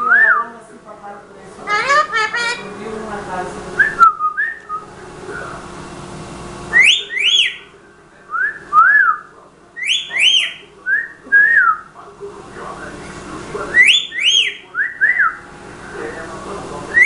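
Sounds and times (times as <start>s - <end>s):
pet bird whistling: 1.7s - 2.6s, 6.7s - 7.7s, 8.4s - 11.9s, 13.7s - 15.4s.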